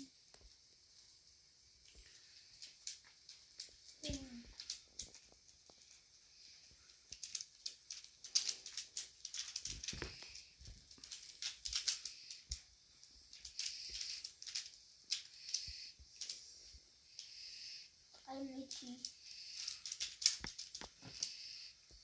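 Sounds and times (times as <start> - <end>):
plastic puzzle pieces clicking: 7.1 - 10.4, 18.6 - 21.3.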